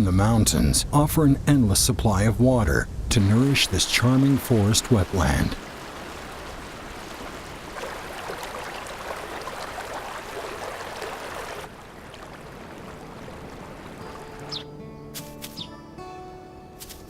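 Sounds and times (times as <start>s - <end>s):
stream water rushing: 3.1s - 14.8s
soft music notes: 13.9s - 17.0s.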